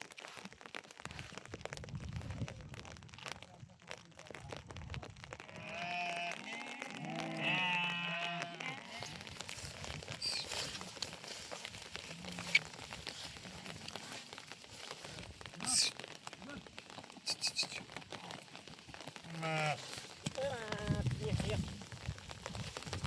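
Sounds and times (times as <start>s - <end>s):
sheep bleating: 5.4s - 9.4s, 19.2s - 21.1s.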